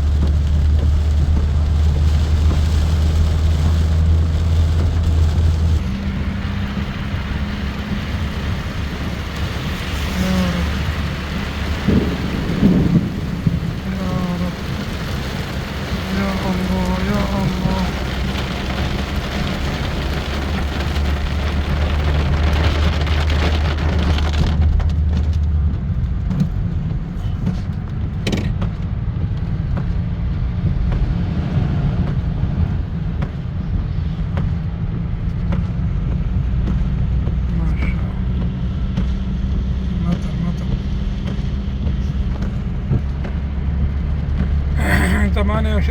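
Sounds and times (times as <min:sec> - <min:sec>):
low rumble: 0:00.0 - 0:45.9
rain falling: 0:00.0 - 0:45.9.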